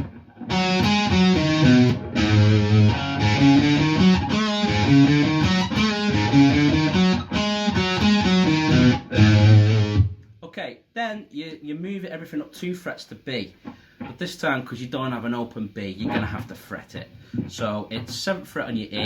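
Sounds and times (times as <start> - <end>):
electric guitar rock riff: 0.0 - 10.2.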